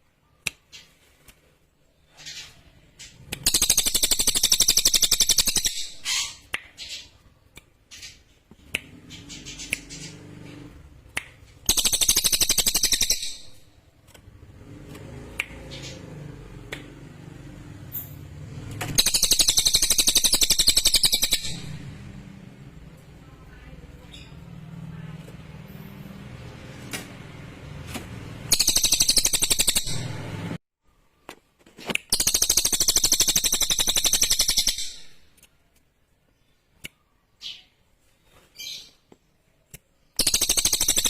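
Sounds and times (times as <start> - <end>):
bird chirps: 1.8 - 13.9, 17.8 - 25.0, 28.4 - 31.3, 32.1 - 35.3, 36.3 - 41.0
songbird fast trills: 19.0 - 21.8.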